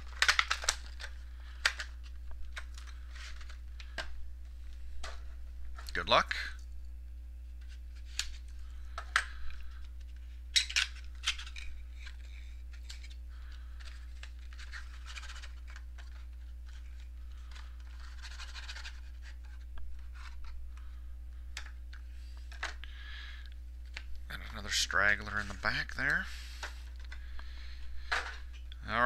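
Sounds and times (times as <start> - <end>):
packaging clicks and scratches: 0.0 - 4.1, 10.5 - 20.5
crinkly packaging rustling: 0.0 - 6.3, 7.5 - 21.0
low electrical hum: 0.0 - 29.0.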